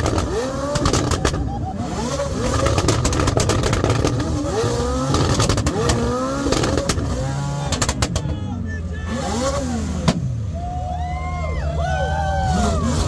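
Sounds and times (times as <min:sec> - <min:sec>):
car engines revving: 0:00.0 - 0:13.0
sharp exhaust cracks: 0:02.4 - 0:08.4.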